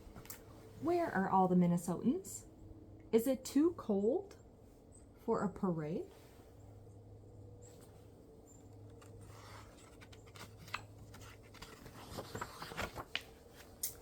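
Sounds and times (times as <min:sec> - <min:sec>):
faint hum: 0:00.0 - 0:14.0
book pages rustling: 0:07.8 - 0:14.0.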